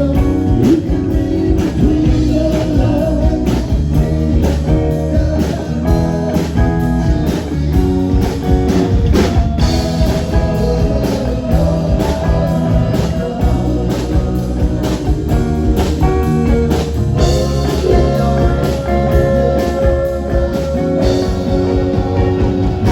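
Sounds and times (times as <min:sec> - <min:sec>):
bass: 0:00.0 - 0:22.9
drum kit: 0:00.0 - 0:22.9
electric guitar lines: 0:06.7 - 0:22.9.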